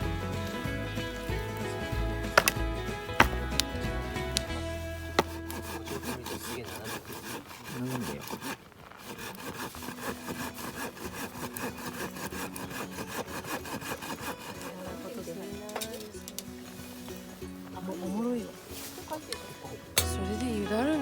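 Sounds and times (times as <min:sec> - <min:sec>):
rasping strokes on wood: 0:01.0 - 0:15.6
faint background music: 0:09.9 - 0:21.0.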